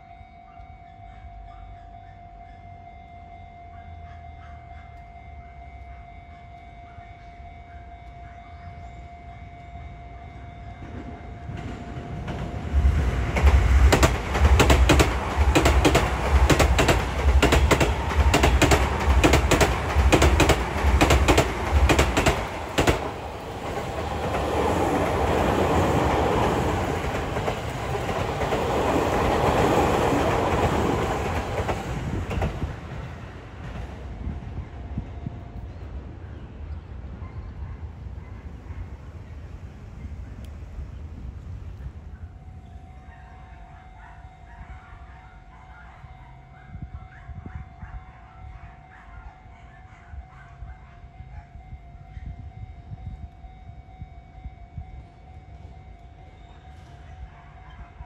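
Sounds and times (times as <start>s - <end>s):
train passing: 0.0s - 58.0s
wheels clacking over rail joints: 10.8s - 34.1s.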